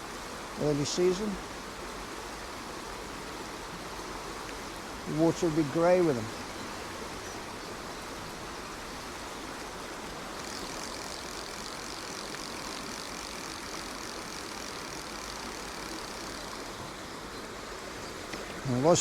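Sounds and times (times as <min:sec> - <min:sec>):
high hiss: 0:00.0 - 0:19.0
rain: 0:00.0 - 0:19.0
rocky stream rushing: 0:00.0 - 0:19.0.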